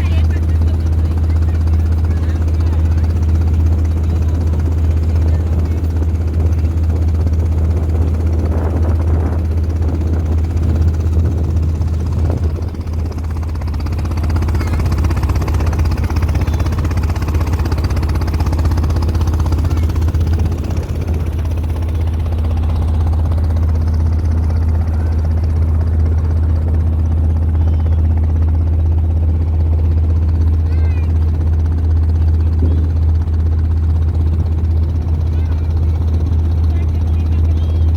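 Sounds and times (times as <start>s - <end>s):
motorboat engine drone: 0.0s - 37.9s.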